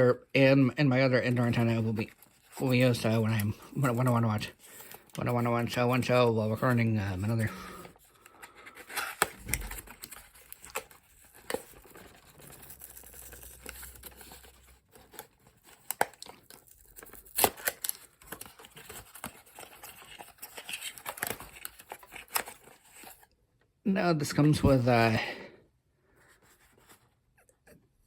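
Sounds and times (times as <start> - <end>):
cardboard tearing and crinkling: 1.3 - 23.3.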